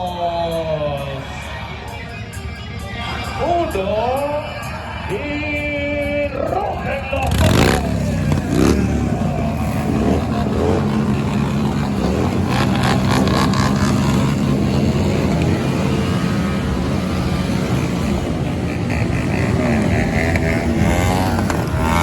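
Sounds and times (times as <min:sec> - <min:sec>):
motorcycle engines running: 0:02.9 - 0:22.0.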